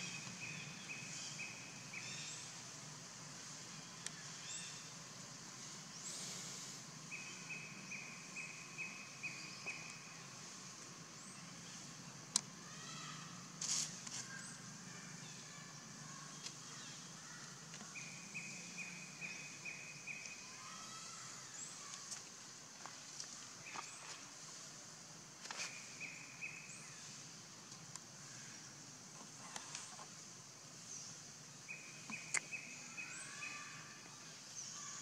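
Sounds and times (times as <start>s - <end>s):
steady high hiss: 0.0s - 35.0s
brief rustle: 13.6s - 14.4s.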